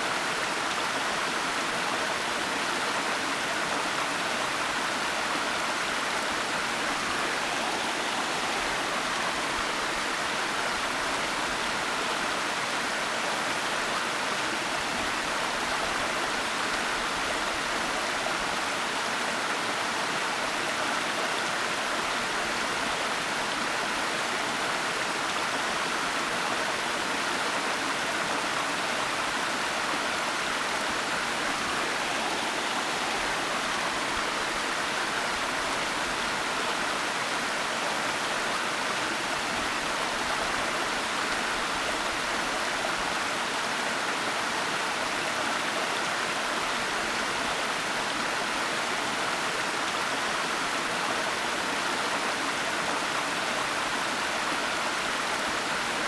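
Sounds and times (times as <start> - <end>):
waterfall rushing: 4.4 - 11.9, 28.9 - 43.6.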